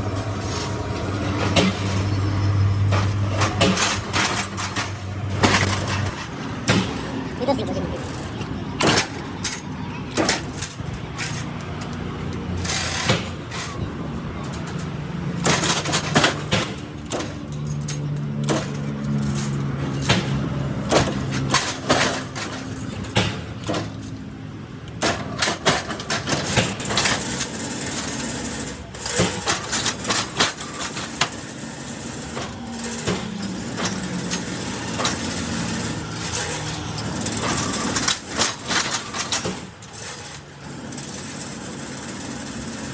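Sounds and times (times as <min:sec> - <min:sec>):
machinery humming: 0:00.0 - 0:42.9
sharp knocks and clatter: 0:00.2 - 0:07.5, 0:08.1 - 0:24.2, 0:29.0 - 0:31.6.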